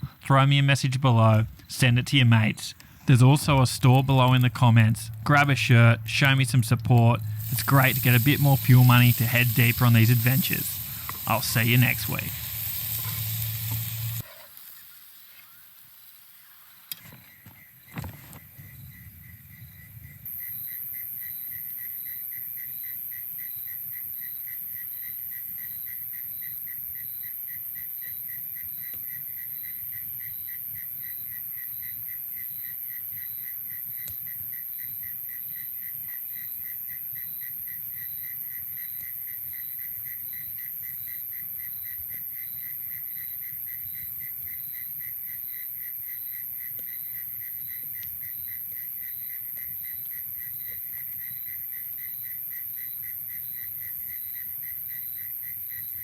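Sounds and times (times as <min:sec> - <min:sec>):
pulsing insect call: 0:07.1 - 0:14.2, 0:18.7 - 0:56.0
high-pitched insect drone: 0:07.2 - 0:14.2, 0:20.3 - 0:56.0.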